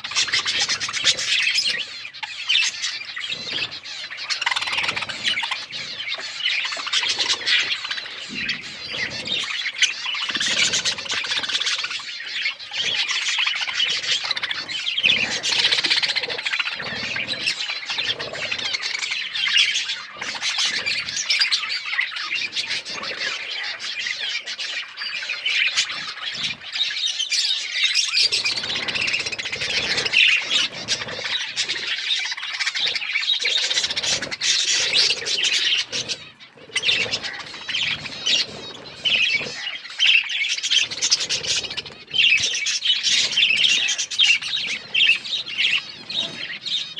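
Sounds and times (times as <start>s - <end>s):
budgerigars chirping and chattering: 0.0s - 46.9s.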